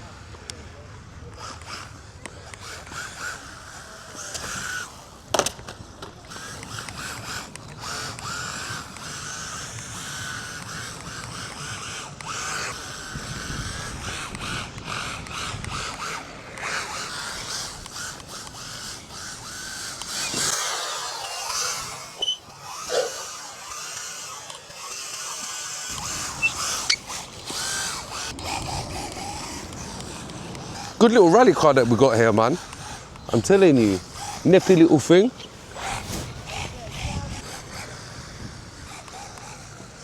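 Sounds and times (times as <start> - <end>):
electric motor whining: 1.3 - 40.0.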